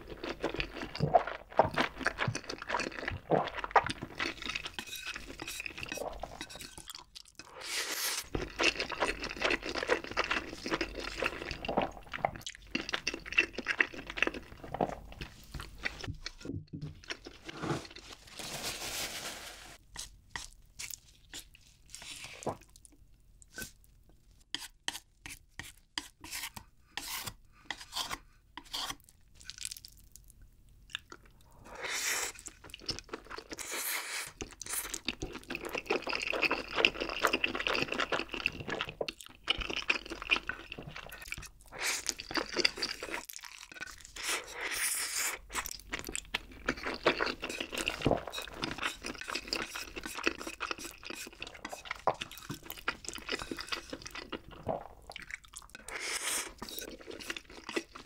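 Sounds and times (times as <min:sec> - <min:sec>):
wet chewing mouth sounds: 0:00.0 - 0:07.6, 0:08.2 - 0:17.4, 0:30.9 - 0:58.0.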